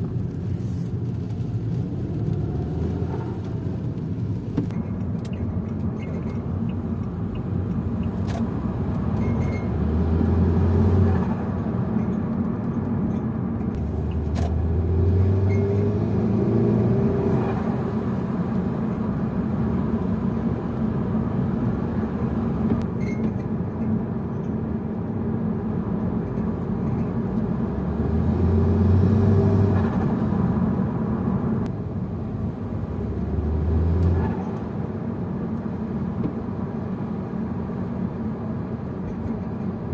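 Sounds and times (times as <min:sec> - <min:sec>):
car engine accelerating: 0:00.0 - 0:11.9, 0:13.7 - 0:22.9, 0:26.8 - 0:31.7, 0:32.4 - 0:34.7.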